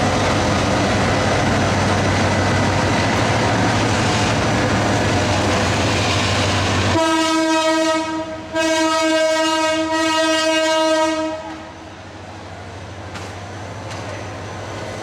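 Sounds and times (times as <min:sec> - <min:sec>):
locomotive horn blowing: 0:06.9 - 0:11.7.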